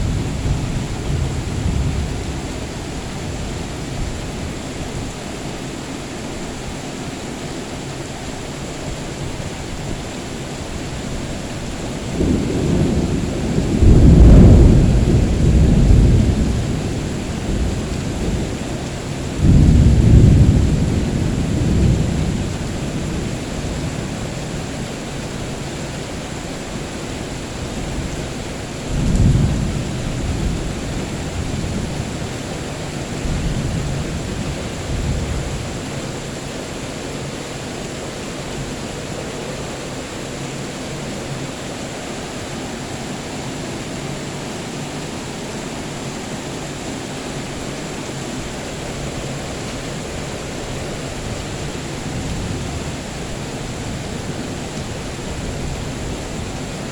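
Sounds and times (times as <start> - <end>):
rolling thunder rumble: 0.0 - 5.2, 11.0 - 25.6, 27.6 - 37.5
heavy rain: 0.0 - 56.9.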